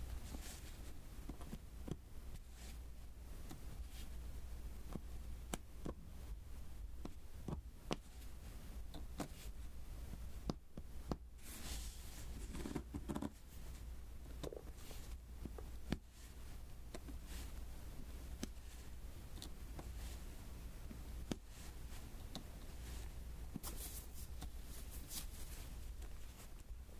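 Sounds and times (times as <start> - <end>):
rustling scrape: 11.4 - 13.8, 22.8 - 26.5.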